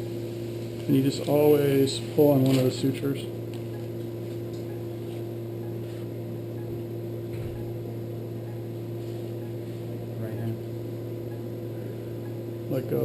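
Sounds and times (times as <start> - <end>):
electrical machine hum: 0.0 - 13.0.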